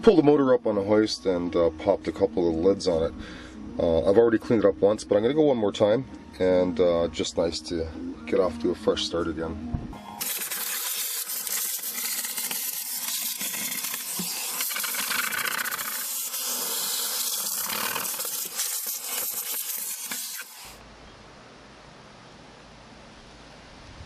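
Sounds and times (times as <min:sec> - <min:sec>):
cleaner spray hissing: 0:10.0 - 0:20.8.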